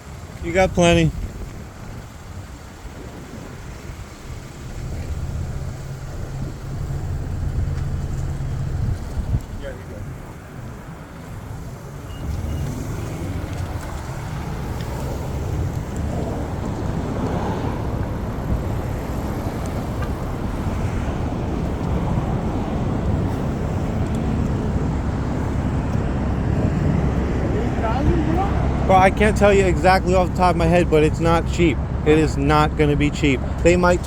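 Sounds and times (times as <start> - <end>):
road traffic rumble: 0.0 - 34.0
wind buffeting microphone: 0.1 - 32.7.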